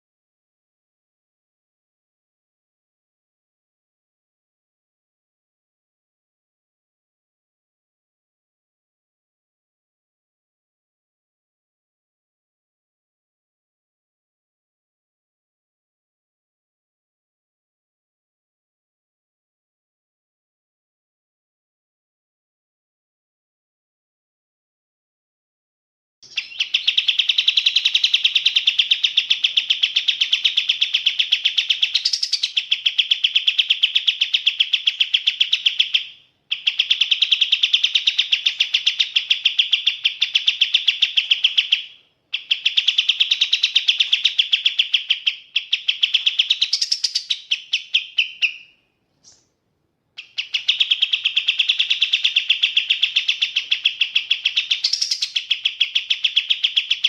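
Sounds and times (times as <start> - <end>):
bird singing rapid high notes: 26.2 - 48.8, 50.2 - 57.0.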